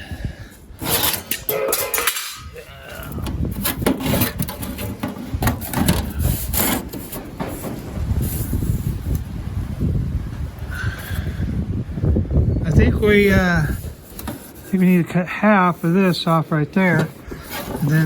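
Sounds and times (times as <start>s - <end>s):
wind buffeting microphone: 0.0s - 18.0s
metal clicks and knocks: 0.8s - 2.6s, 3.2s - 8.0s.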